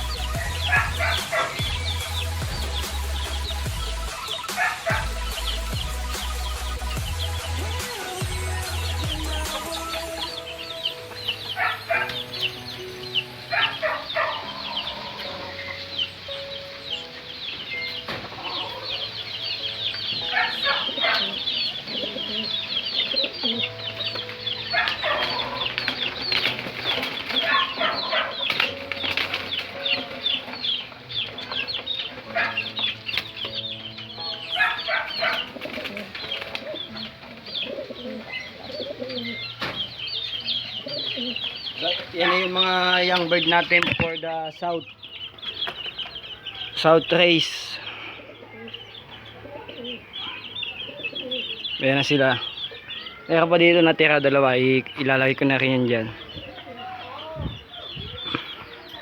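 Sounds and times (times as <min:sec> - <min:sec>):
birds chirping: 0:00.0 - 0:59.0
faint background music: 0:00.0 - 0:59.0
wing flapping: 0:24.2 - 0:33.6, 0:34.6 - 0:38.2.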